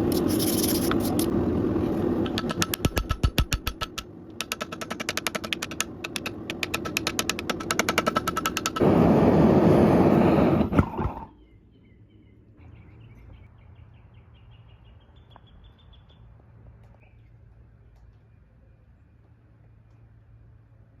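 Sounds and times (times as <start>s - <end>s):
loud steady rushing noise: 5.4s - 10.8s
hammer blows on hot metal: 6.2s - 11.3s.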